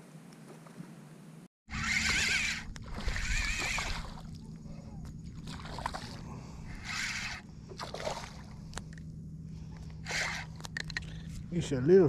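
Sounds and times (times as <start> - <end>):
steady low hum: 1.0 - 12.0
water splashing: 1.8 - 4.5, 5.3 - 6.2, 7.0 - 8.6.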